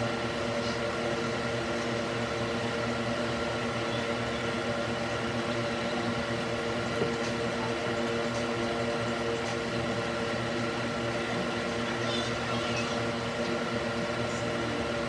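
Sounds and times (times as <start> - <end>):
fan hum: 0.0 - 15.0.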